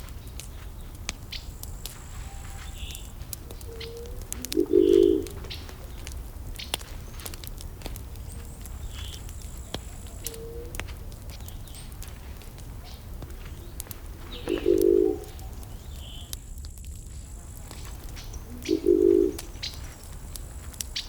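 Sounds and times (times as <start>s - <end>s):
wood fire crackling: 0.0s - 21.0s
bird cooing: 3.5s - 5.6s, 10.0s - 10.8s, 14.2s - 16.3s, 18.4s - 19.6s.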